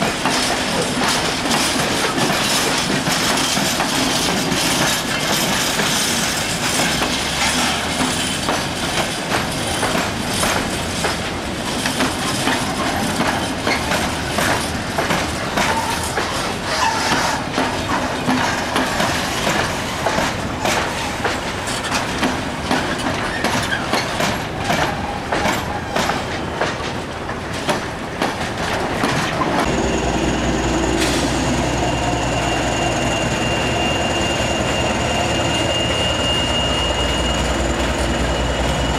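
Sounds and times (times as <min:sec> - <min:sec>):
train wheels clicking over rail joints: 0:00.0 - 0:29.8.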